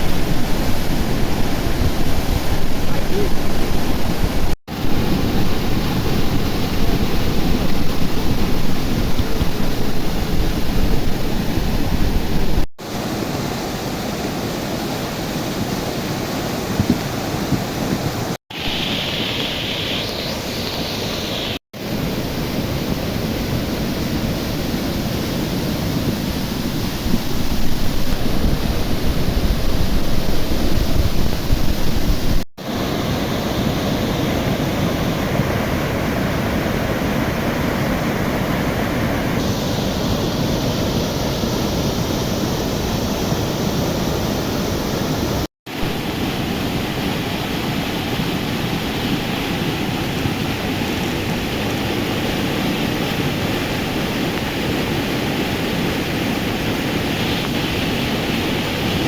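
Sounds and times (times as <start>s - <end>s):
river rushing in flood: 0.0s - 59.0s.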